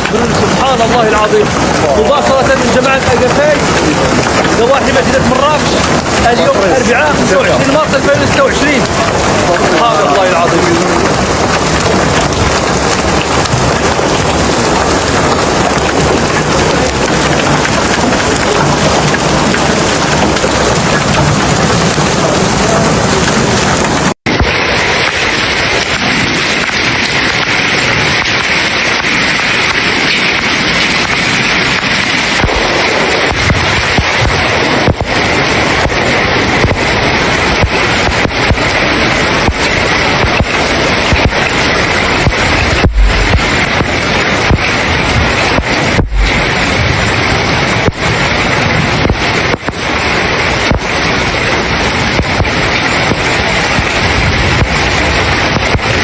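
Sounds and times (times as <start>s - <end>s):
hail and heavy rain pelting: 0.0s - 56.0s
wind rumbling on microphone: 0.0s - 56.0s
low thumps: 32.2s - 49.8s.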